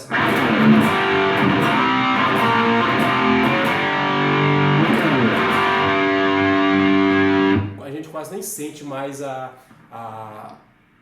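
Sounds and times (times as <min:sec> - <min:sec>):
distorted electric guitar: 0:00.0 - 0:07.8.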